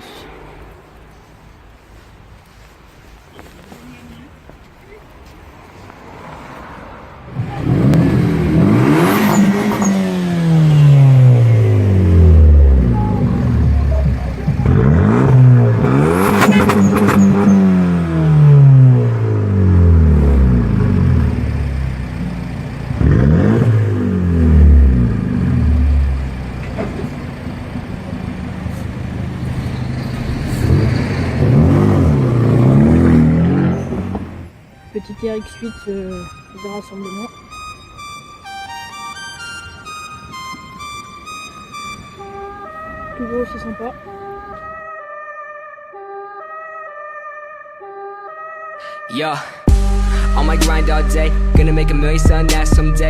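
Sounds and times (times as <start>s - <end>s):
car engine idling: 0.0s - 44.5s, 49.7s - 53.0s
car engine revving: 6.0s - 34.7s, 49.7s - 53.0s.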